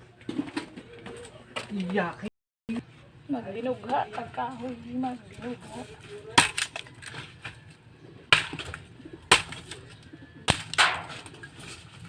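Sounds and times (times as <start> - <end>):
firewood cracking: 6.3 - 7.6, 8.3 - 11.8.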